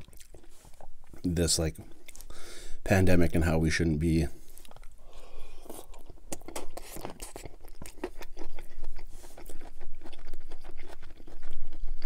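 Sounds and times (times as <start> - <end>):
wet crunchy chewing: 0.0 - 1.3, 4.4 - 12.0.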